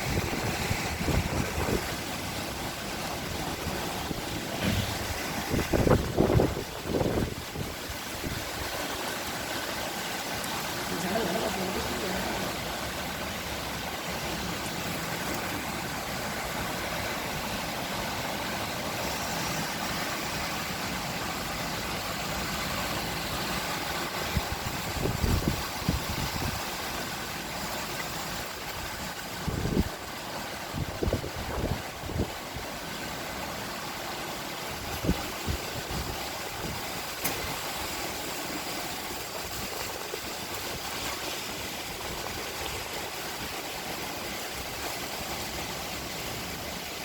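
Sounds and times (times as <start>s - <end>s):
heavy rain falling: 0.0s - 47.0s
short low thumps: 4.5s - 6.0s.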